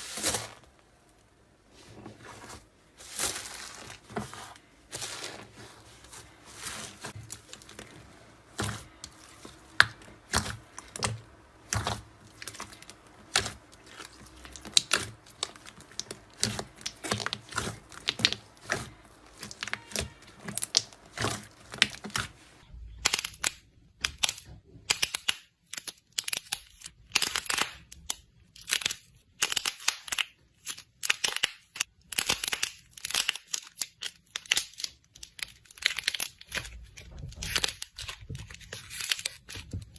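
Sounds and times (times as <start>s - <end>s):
soft material crackling and crunching: 0.0s - 24.6s.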